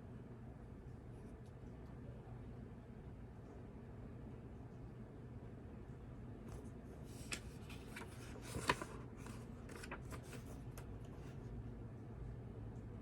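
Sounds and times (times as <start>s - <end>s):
low steady background hum: 0.0s - 13.0s
paper rustling: 6.5s - 11.4s.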